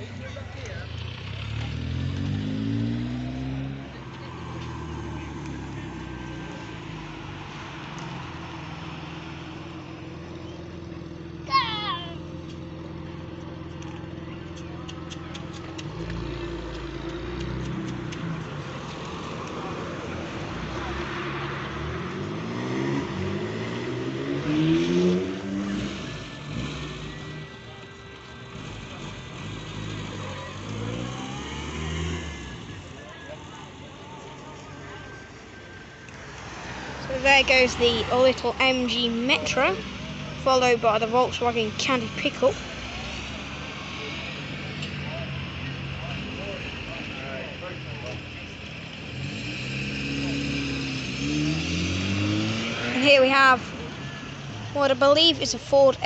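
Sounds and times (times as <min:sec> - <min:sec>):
car engine accelerating past: 0:00.8 - 0:09.5, 0:13.8 - 0:27.8, 0:28.4 - 0:33.6, 0:48.9 - 0:54.4.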